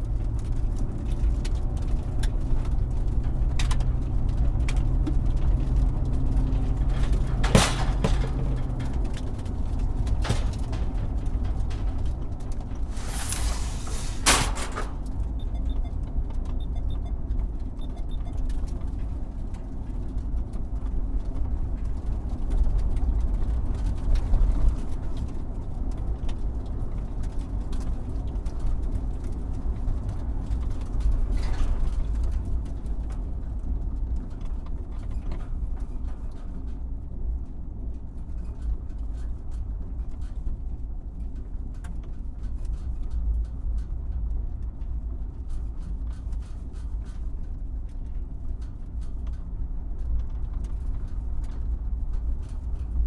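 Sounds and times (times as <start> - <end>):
excavator rumbling: 0.0 - 16.0
rushing noise: 12.8 - 15.1.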